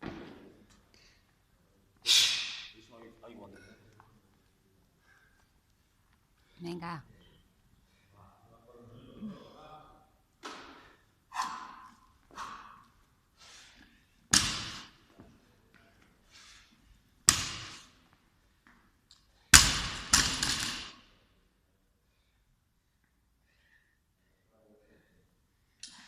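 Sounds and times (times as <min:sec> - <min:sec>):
barbell thudding on floor: 0:14.3 - 0:15.0.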